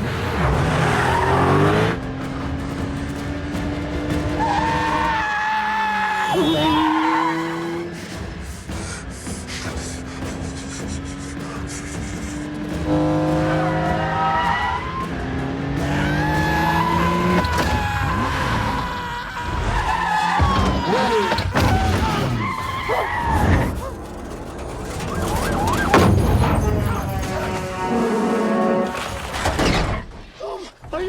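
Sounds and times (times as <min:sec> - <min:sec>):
sports car engine running hard: 0:00.0 - 0:05.2, 0:07.6 - 0:17.5
film music: 0:00.0 - 0:29.9
tyres squealing and skidding: 0:00.0 - 0:30.8.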